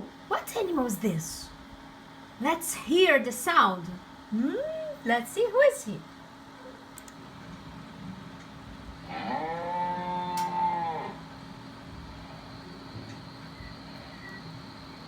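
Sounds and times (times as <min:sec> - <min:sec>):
cow mooing: 0:09.1 - 0:11.2.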